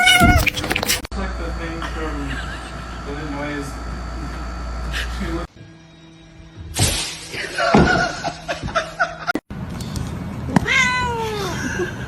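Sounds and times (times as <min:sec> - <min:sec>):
cat meowing: 0:00.0 - 0:00.9, 0:10.6 - 0:11.5.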